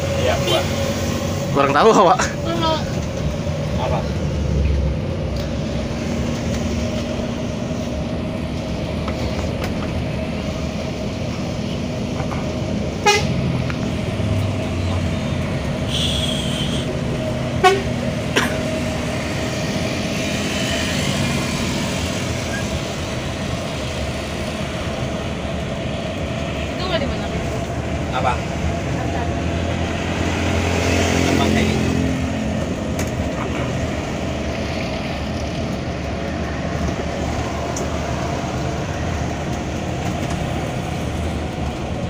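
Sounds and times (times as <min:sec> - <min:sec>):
bus engine and road hum: 0:00.0 - 0:42.0
horn beeps: 0:15.8 - 0:16.9.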